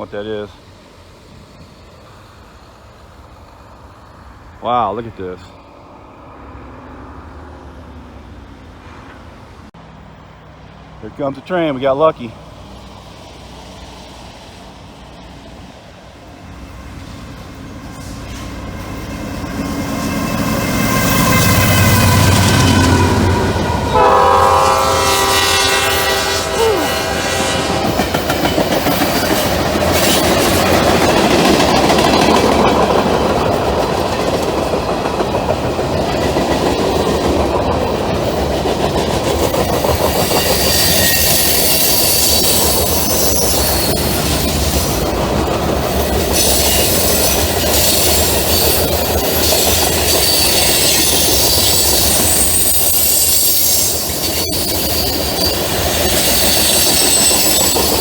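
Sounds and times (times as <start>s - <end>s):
freight train wheels rumbling on rail: 0.0s - 58.0s
clickety-clack of rail joints: 8.7s - 9.7s, 27.4s - 58.0s
faint high wheel squeal: 40.2s - 45.0s, 46.3s - 58.0s.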